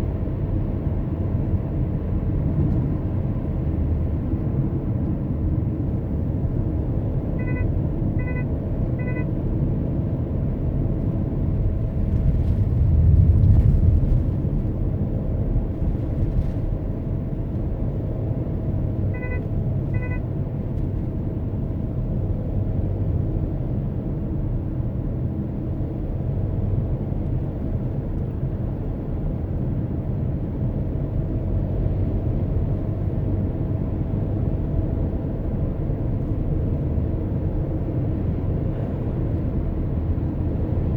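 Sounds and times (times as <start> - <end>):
car engine and road rumble: 0.0 - 40.9
short electronic beeps: 7.4 - 9.3, 19.1 - 20.3.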